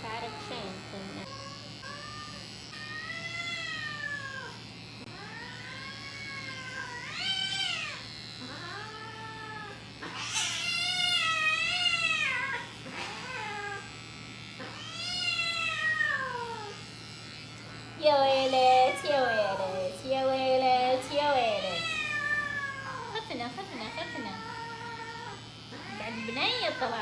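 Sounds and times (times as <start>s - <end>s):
cat meowing: 8.6s - 12.6s, 14.8s - 16.8s, 21.5s - 23.1s, 24.0s - 27.0s.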